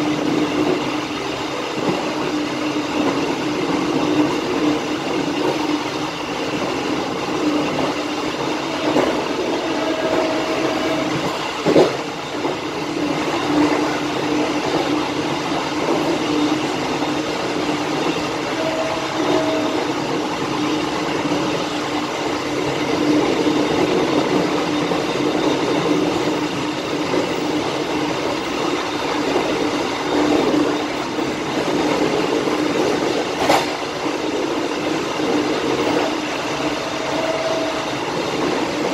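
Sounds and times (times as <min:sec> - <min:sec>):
train wheel squeals: 0:00.0 - 0:38.9
train wheels rumbling on rails: 0:00.0 - 0:38.9.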